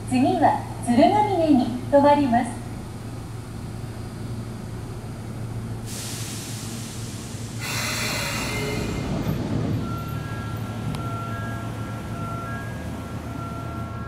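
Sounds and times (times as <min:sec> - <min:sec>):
electric train humming: 0:00.0 - 0:14.0
compressed-air hiss: 0:05.9 - 0:09.1.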